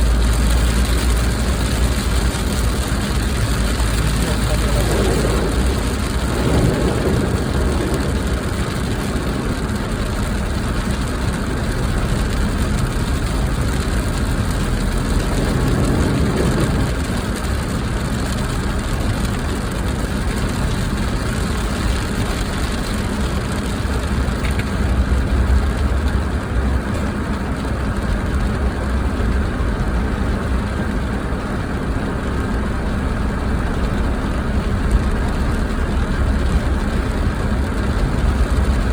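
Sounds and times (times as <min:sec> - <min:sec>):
car engine rumble inside cabin: 0:00.0 - 0:38.9.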